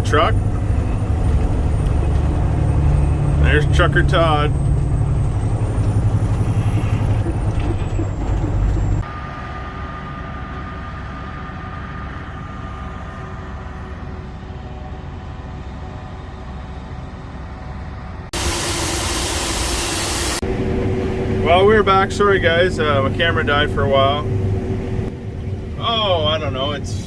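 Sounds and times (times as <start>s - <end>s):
farm vehicle engine rumbling: 0.0s - 27.0s
loud hiss: 18.4s - 20.4s.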